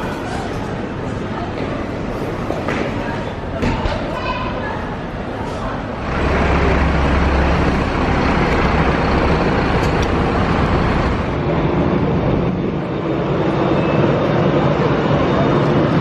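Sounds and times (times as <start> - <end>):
vehicle engine rumble: 5.3 - 16.0.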